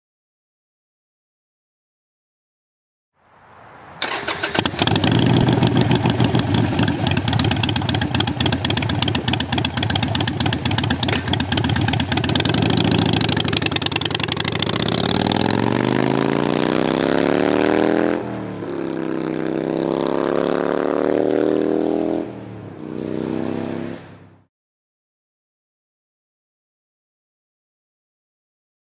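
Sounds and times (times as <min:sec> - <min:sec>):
motorcycle engine revving: 0:04.0 - 0:24.5.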